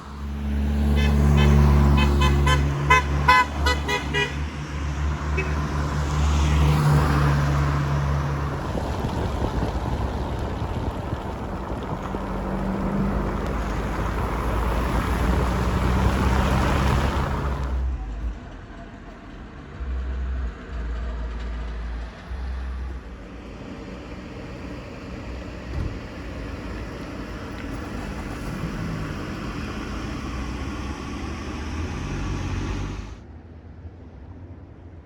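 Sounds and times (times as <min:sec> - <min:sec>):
road and tyre noise: 0:00.0 - 0:35.0
wind buffeting microphone: 0:07.5 - 0:17.6.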